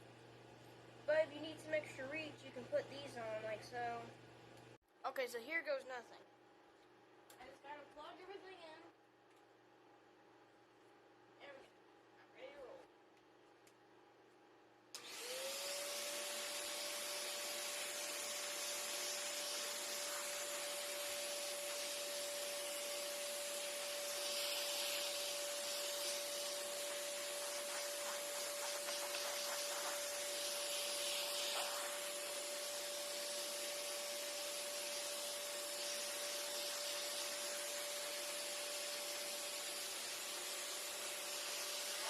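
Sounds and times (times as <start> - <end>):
vacuum cleaner suction hiss: 15.0 - 42.0.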